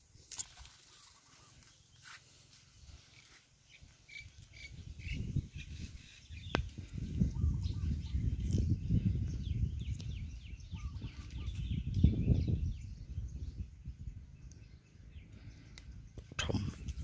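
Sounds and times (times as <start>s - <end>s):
small birds chirping: 0.1s - 17.0s
low microphone rumble: 4.8s - 17.0s.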